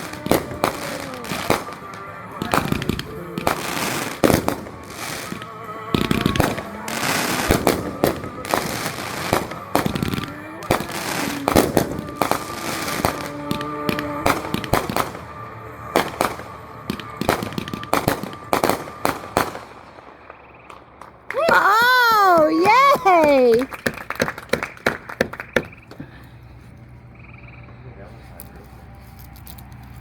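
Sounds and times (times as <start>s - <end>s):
country song playing: 0.0s - 19.6s, 21.4s - 23.6s
fireworks bangs and crackles: 0.0s - 26.0s.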